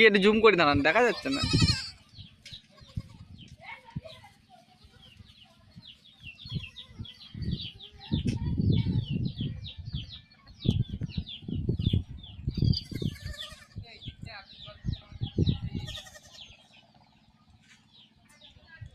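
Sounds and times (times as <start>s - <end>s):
microphone bumps and rumbling: 6.4s - 13.3s.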